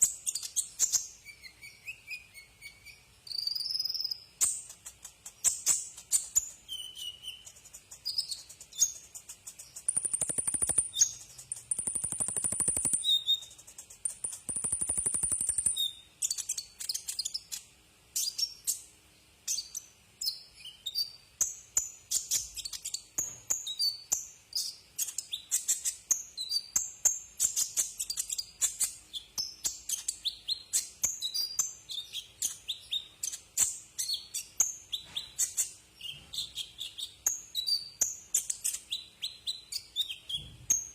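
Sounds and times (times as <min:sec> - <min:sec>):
sunbird chirping: 0:00.0 - 0:26.8.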